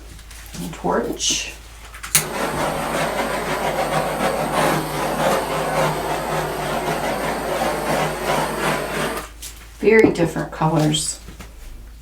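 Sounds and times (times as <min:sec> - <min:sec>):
torch flame hissing: 0:02.2 - 0:09.3.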